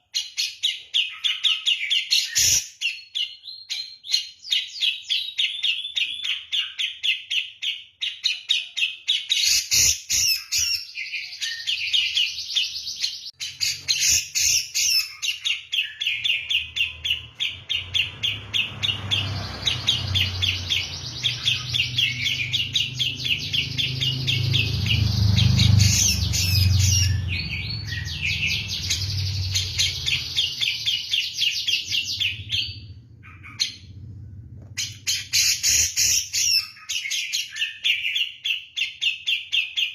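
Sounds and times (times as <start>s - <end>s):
bulbul singing: 0.0s - 34.0s, 34.8s - 39.9s
low rumble: 31.8s - 35.1s.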